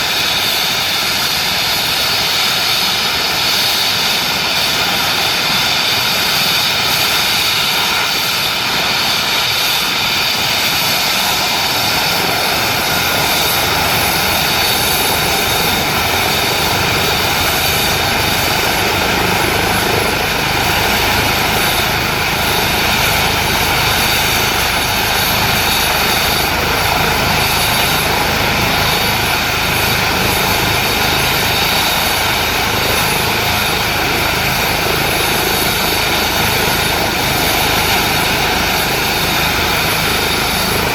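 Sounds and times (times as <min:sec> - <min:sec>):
deep rotor rumble: 0:00.0 - 0:40.9
helicopter turbine whine: 0:00.0 - 0:40.9.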